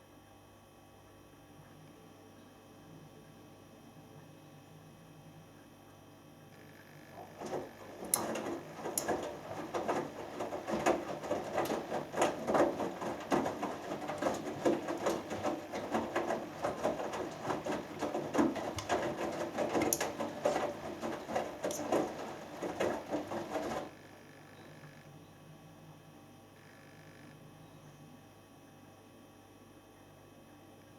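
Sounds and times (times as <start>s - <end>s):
wet laundry splashing: 7.1s - 23.9s
washing machine drum tumbling: 7.1s - 24.0s
light clicks and knocks: 7.2s - 23.9s.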